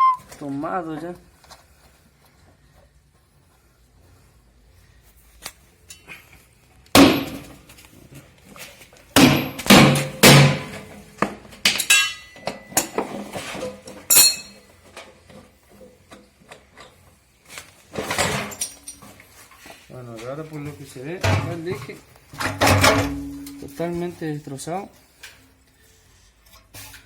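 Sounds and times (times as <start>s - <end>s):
metallic knocks and clinks: 11.7s - 13.0s, 14.1s - 14.6s.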